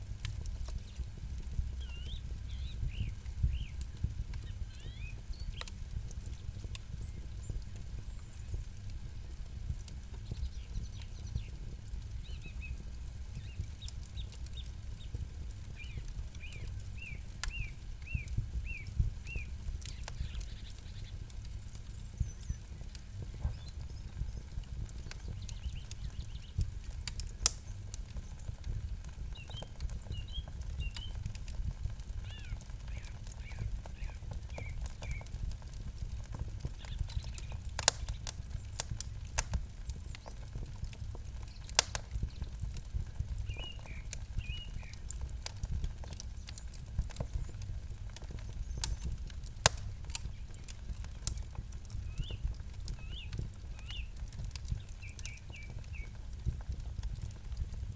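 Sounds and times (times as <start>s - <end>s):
campfire crackling and popping: 0.0s - 57.9s
low steady rumble: 0.0s - 57.9s
small bird chirping: 0.7s - 8.6s, 12.2s - 31.4s, 32.2s - 35.3s, 36.8s - 38.9s, 43.4s - 45.2s, 51.3s - 56.2s.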